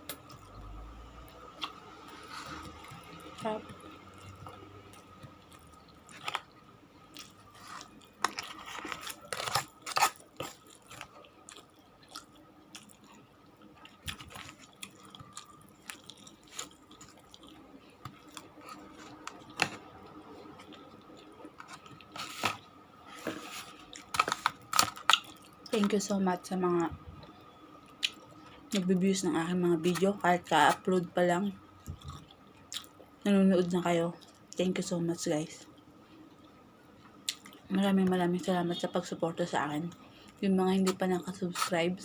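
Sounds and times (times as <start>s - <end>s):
faint steady hum: 0.0s - 42.0s
person chewing food: 1.4s - 25.8s, 31.8s - 33.1s, 37.2s - 37.6s.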